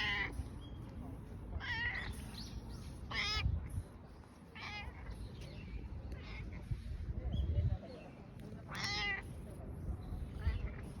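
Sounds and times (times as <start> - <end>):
cat meowing: 8.7 - 9.2.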